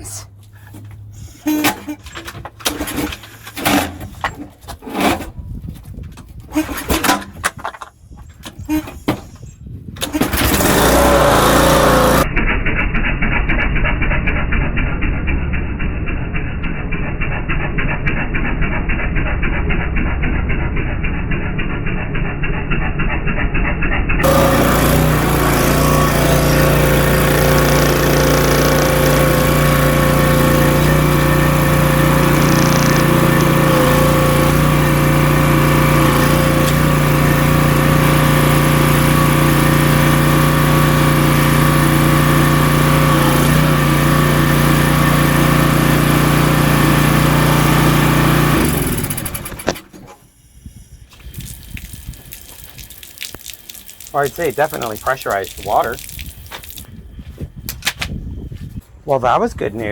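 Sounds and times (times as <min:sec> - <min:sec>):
pressure washer engine running: 0:10.0 - 0:12.3, 0:24.2 - 0:49.9, 0:54.1 - 0:56.0.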